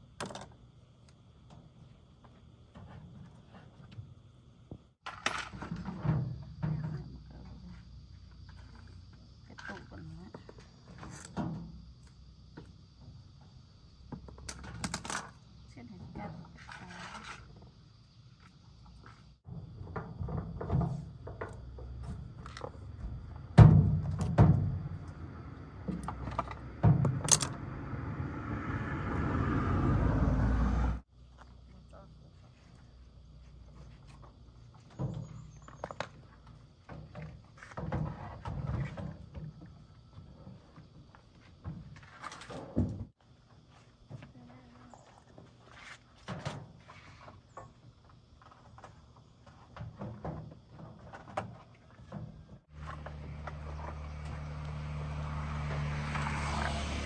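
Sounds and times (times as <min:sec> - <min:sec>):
low running rumble: 0:21.9 - 0:31.1.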